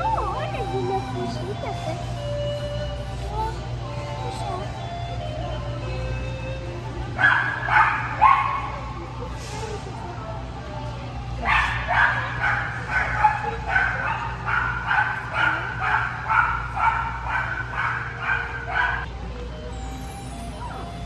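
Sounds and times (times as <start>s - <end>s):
dog barking: 7.2s - 8.8s, 11.4s - 19.1s.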